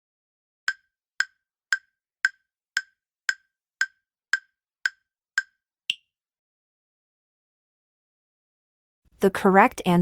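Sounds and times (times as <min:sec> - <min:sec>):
countdown timer ticking: 0:00.7 - 0:06.0.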